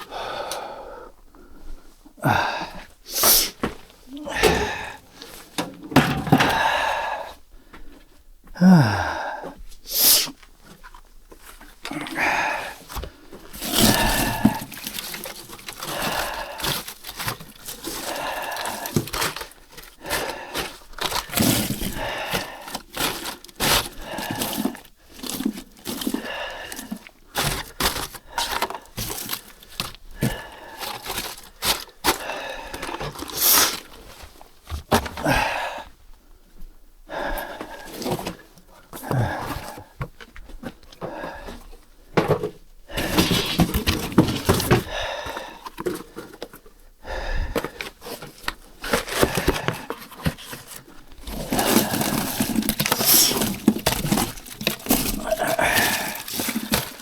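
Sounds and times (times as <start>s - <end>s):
handling knocks and clacks: 3.6s - 6.7s
scraping and rustling: 12.8s - 32.2s, 41.6s - 44.9s, 47.6s - 57.0s.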